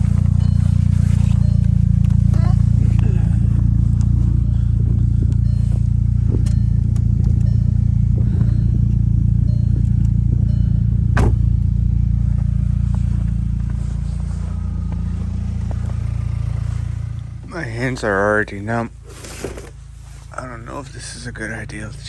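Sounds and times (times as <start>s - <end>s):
car engine idling: 0.0s - 22.0s
sharp knock: 11.2s - 11.5s.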